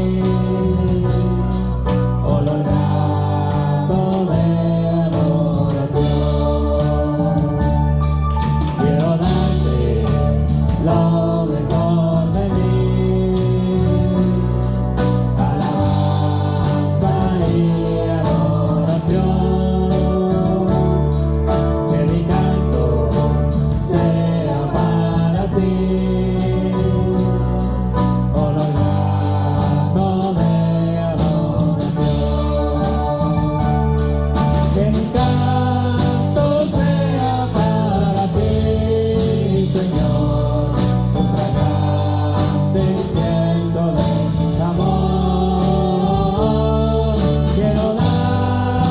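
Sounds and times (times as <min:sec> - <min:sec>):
band playing: 0:00.0 - 0:48.9
voices singing: 0:00.0 - 0:48.9.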